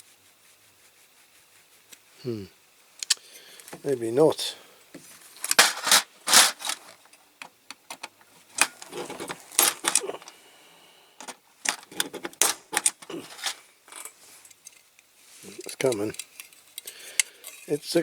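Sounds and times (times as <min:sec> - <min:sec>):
hand tool clicking and scraping metal: 0:05.4 - 0:07.0, 0:08.6 - 0:10.3, 0:11.2 - 0:14.8.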